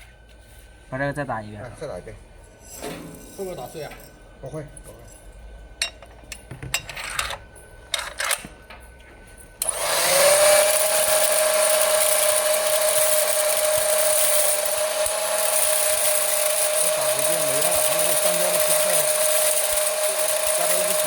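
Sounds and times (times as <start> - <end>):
grain-sorting machine whining: 9.6 - 21.0.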